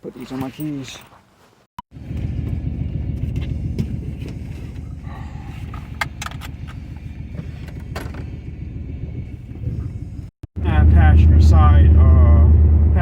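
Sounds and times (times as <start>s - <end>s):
van engine rumbling: 1.9s - 13.0s.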